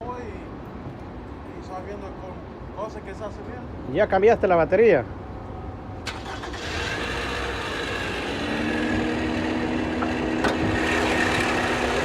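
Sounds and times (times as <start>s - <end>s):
car engine idling: 5.7s - 12.0s.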